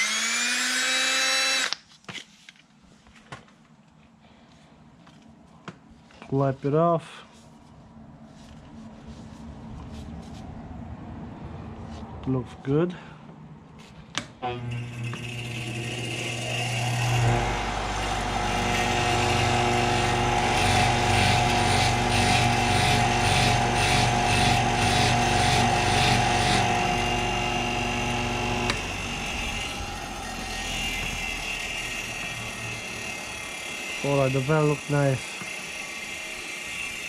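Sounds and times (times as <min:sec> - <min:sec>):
electric drill running: 0:00.0 - 0:01.8, 0:14.5 - 0:37.0
pad polishing metal valve: 0:18.4 - 0:27.2.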